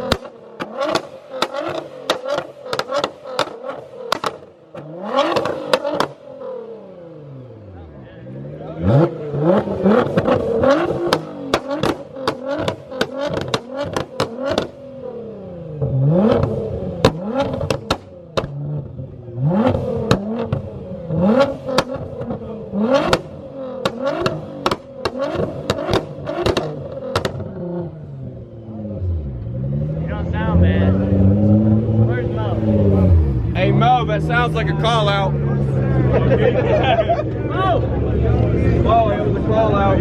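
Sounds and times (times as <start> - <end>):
exhaust pops and bangs: 0.0 - 6.2, 9.6 - 14.8, 15.8 - 19.0, 19.6 - 27.7
car engine revving hard: 0.0 - 40.0.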